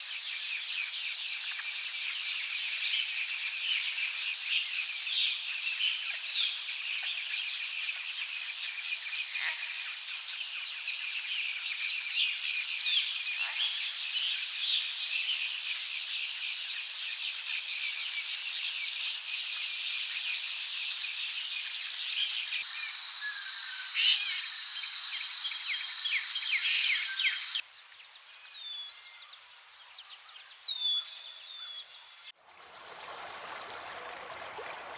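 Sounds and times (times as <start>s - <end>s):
bird calls: 22.6s - 27.6s, 29.8s - 32.3s
high insect buzz: 22.6s - 27.6s
insects chirping and trilling: 22.6s - 32.3s.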